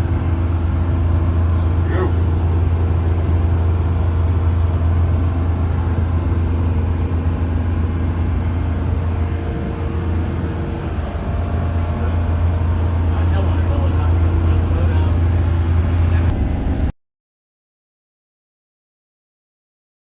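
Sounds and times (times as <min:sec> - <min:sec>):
motorboat engine humming: 0:00.0 - 0:16.9.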